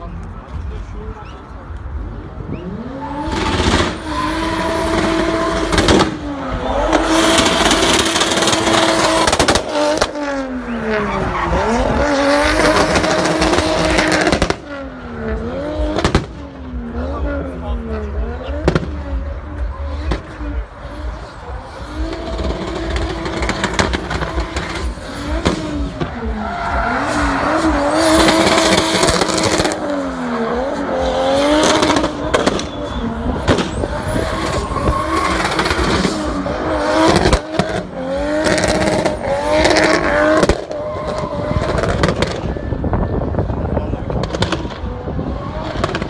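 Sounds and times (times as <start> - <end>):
car engine revving: 1.7 - 46.0.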